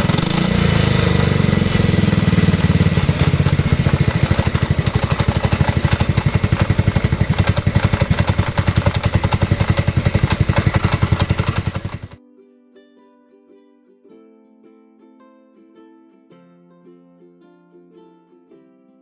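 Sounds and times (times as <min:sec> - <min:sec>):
engine knocking: 0:00.0 - 0:12.2
scooter engine idling: 0:00.0 - 0:12.2.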